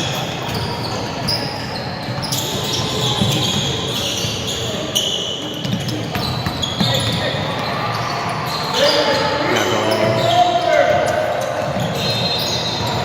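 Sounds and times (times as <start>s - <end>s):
shoe squeaks: 0.0s - 13.0s
voices echoing: 0.0s - 13.0s
basketball bouncing: 11.6s - 13.0s.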